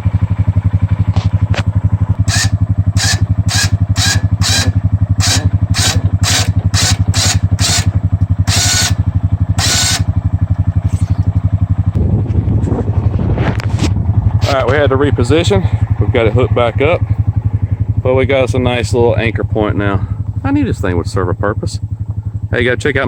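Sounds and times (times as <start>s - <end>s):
atv engine idling: 0.0s - 23.0s
electric winch whirring: 2.2s - 11.5s.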